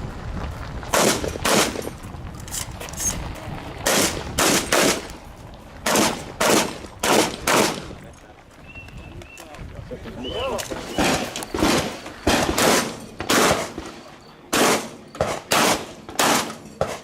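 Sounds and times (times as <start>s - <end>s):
shotgun shots with echo: 0.9s - 1.8s, 3.8s - 5.1s, 5.8s - 8.0s, 10.9s - 17.0s.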